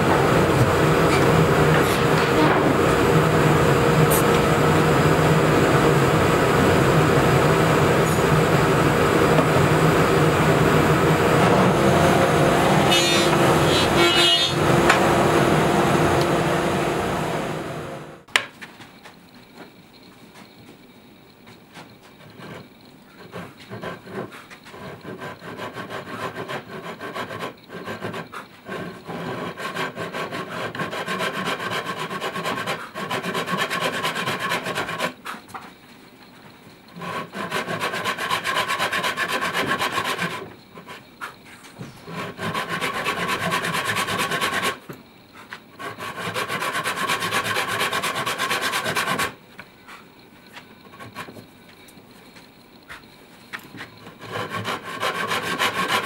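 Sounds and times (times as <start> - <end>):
handsaw cutting wood: 0.3 - 16.9, 23.7 - 35.2, 37.0 - 40.5, 42.1 - 44.8, 45.8 - 49.4, 54.2 - 56.0.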